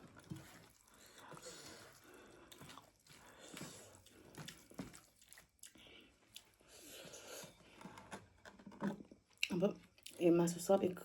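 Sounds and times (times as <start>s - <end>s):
chewing meat: 0.0s - 7.6s.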